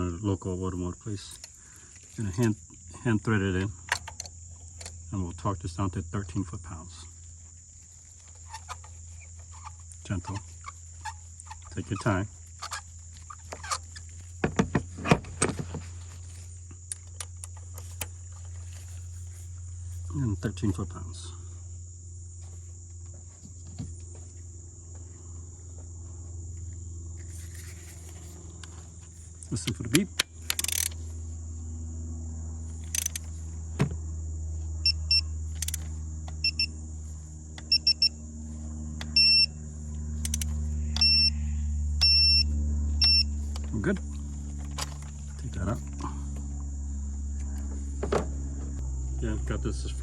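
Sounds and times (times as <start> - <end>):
steady low hum: 0.0 - 50.0
ratchet clicking: 30.2 - 31.0, 32.8 - 33.3, 35.5 - 35.9, 40.2 - 41.2
torque wrench beeping: 30.4 - 31.0, 32.8 - 33.3, 34.8 - 35.8, 36.4 - 36.7, 37.6 - 38.2, 39.0 - 39.6, 40.2 - 41.4, 42.0 - 43.4.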